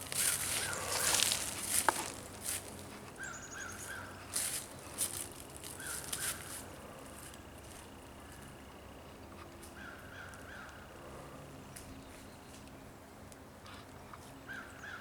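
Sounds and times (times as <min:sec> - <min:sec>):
bird calling: 0:00.0 - 0:02.3, 0:03.2 - 0:04.4, 0:05.1 - 0:06.6
footsteps crunching dry leaves: 0:00.0 - 0:07.9.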